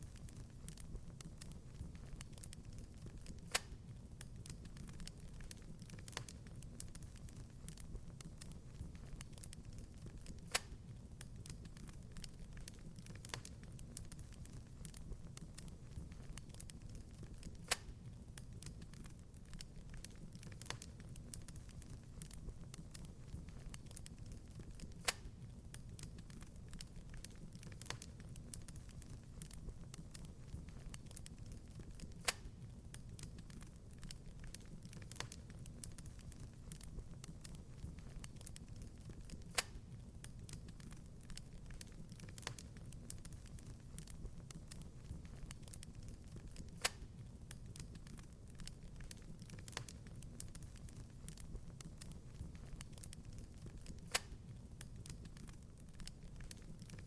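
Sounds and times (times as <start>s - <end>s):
low rumble of flame: 0.0s - 57.0s
wood fire crackling: 0.0s - 57.0s.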